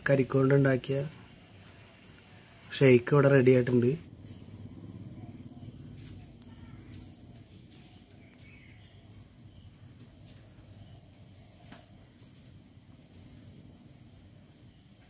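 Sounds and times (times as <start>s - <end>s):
low background hum: 0.0s - 15.0s
bird chirps: 4.1s - 11.9s.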